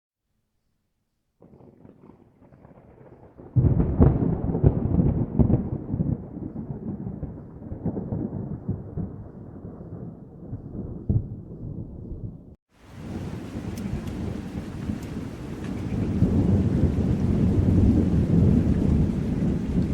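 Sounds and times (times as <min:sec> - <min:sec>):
thunder rumbling and cracking: 0:01.4 - 0:19.9.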